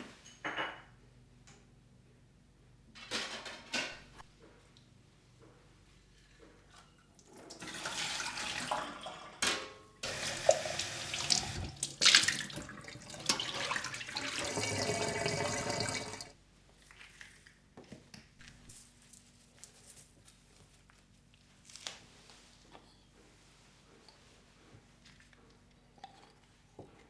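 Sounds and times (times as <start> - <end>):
tap water running into sink: 7.3 - 16.3.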